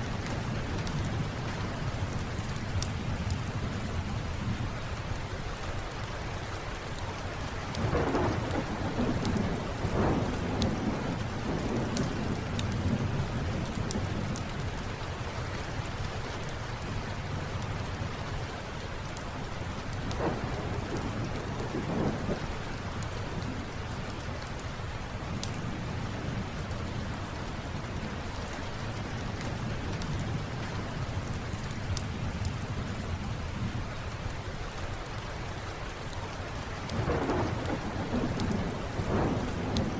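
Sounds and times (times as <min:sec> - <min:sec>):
rain falling: 0:00.0 - 0:39.9
thunder rumbling: 0:07.8 - 0:14.7, 0:19.8 - 0:24.2, 0:36.9 - 0:39.9
faint scattered clicks: 0:09.2 - 0:10.8, 0:11.5 - 0:12.8, 0:36.9 - 0:39.9.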